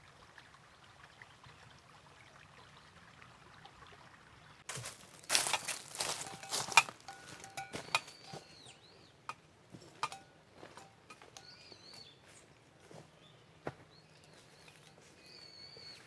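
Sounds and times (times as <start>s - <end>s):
bird chirping: 5.2s - 9.3s, 10.0s - 12.5s, 13.2s - 16.0s.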